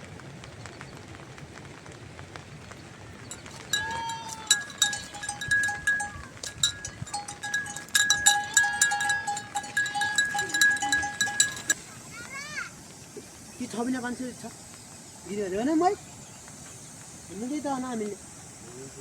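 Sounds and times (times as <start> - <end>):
small metal bell clanking: 3.3 - 11.8.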